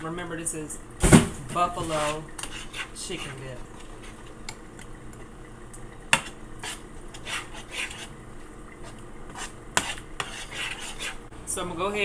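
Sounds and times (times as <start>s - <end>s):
spoon scraping and clinking pot: 1.8s - 4.4s, 6.1s - 8.1s, 8.8s - 11.2s.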